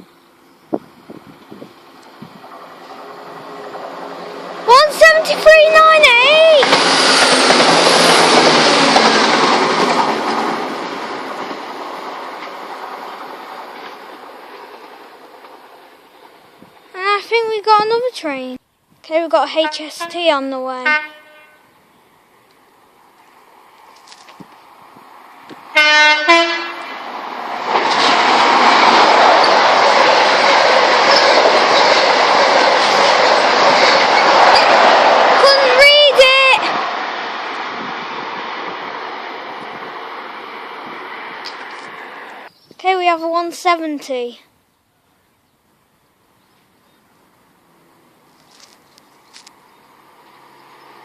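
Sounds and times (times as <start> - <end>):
train passing at speed: 0.0 - 18.4, 19.4 - 44.3, 45.6 - 51.0
train two-tone horn: 19.6 - 20.2, 20.8 - 21.7, 25.7 - 26.9.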